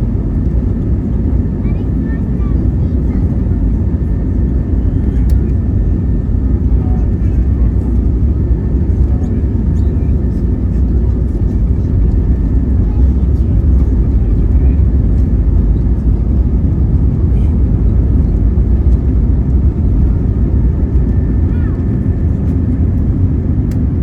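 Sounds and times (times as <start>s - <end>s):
jet engines at takeoff power: 0.0s - 24.0s.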